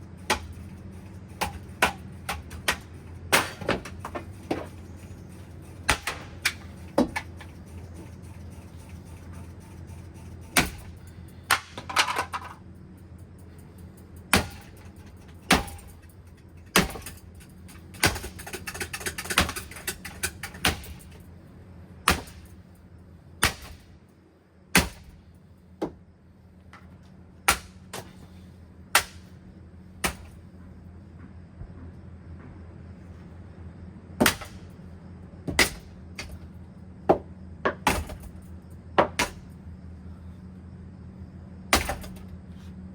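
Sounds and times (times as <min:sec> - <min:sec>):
steady low hum: 0:00.0 - 0:42.9
hard blows smashing fan: 0:00.1 - 0:07.5, 0:10.0 - 0:12.5, 0:14.3 - 0:21.3, 0:41.6 - 0:42.3.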